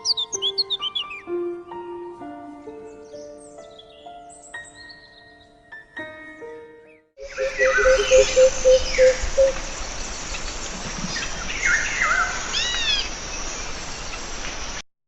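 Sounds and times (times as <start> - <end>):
low hooting bird notes: 7.2 - 13.2
falling whistled bird calls: 7.2 - 14.3
rainforest ambience hiss: 7.2 - 14.8.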